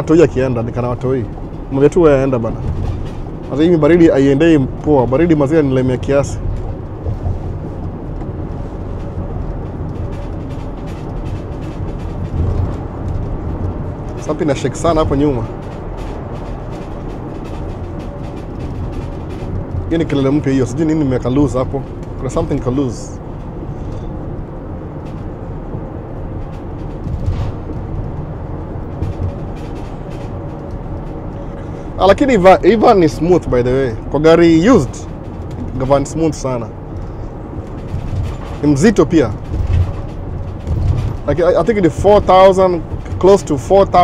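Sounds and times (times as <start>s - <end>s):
faint rattling: 0.0s - 44.0s
road and engine rumble: 0.0s - 44.0s.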